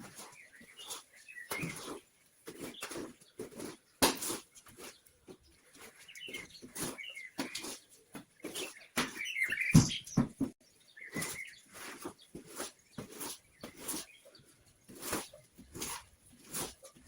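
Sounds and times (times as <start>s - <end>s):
rustling: 0.0s - 9.8s, 11.0s - 17.0s
small birds chirping: 0.0s - 17.0s
knocks: 9.0s - 10.6s.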